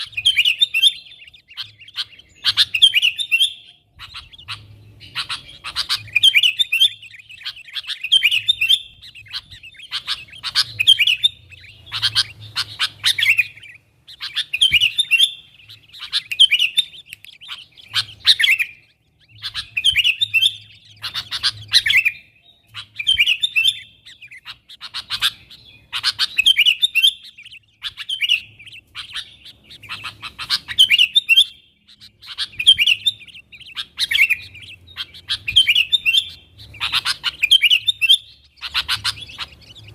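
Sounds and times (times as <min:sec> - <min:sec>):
bird chattering calls: 0:00.0 - 0:39.9.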